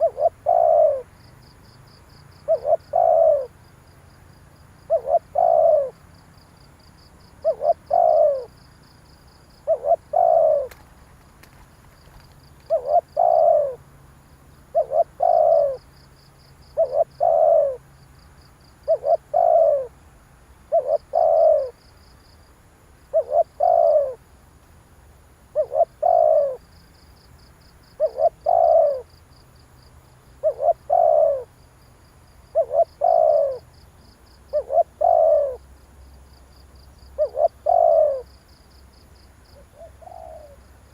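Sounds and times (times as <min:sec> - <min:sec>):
dove cooing: 0:00.0 - 0:01.1, 0:02.3 - 0:03.6, 0:04.8 - 0:06.0, 0:07.4 - 0:08.6, 0:09.6 - 0:11.0, 0:12.0 - 0:13.8, 0:14.7 - 0:15.9, 0:16.7 - 0:17.9, 0:18.8 - 0:20.0, 0:20.7 - 0:21.8, 0:23.1 - 0:24.2, 0:25.5 - 0:26.6, 0:27.9 - 0:29.1, 0:30.4 - 0:31.5, 0:32.5 - 0:33.7, 0:34.5 - 0:35.7, 0:37.1 - 0:38.4, 0:39.6 - 0:40.6.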